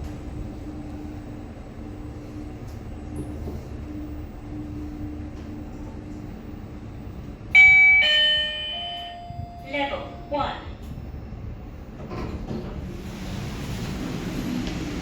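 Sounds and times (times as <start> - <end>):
lift car humming: 0.0 - 15.0
two-note lift arrival chime: 7.6 - 10.5.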